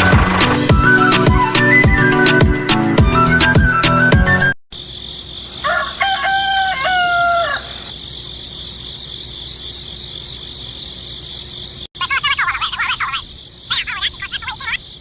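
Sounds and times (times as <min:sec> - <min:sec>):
rooster crowing: 0:05.5 - 0:08.0.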